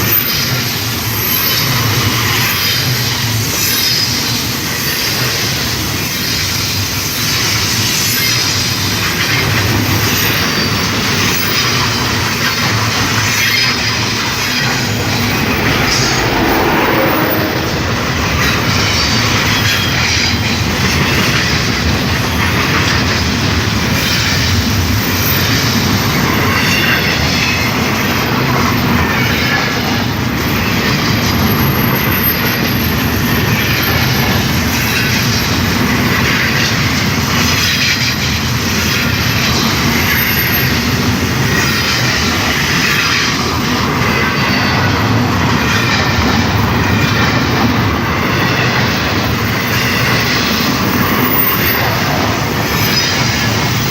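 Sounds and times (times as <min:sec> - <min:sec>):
clickety-clack of train wheels: 0:00.0 - 0:53.9
train wheels rumbling on rail: 0:00.0 - 0:53.9
high-pitched wheel squeal: 0:14.0 - 0:19.6.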